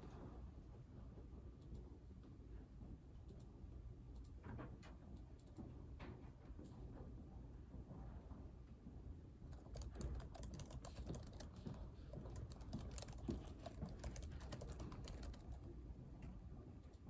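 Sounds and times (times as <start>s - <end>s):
typing on computer keyboard: 9.5s - 15.8s.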